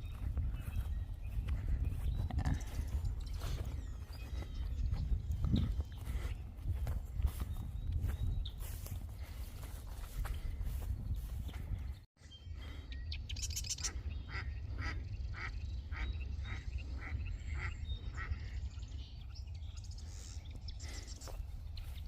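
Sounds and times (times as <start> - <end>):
frogs croaking: 2.0 - 3.7.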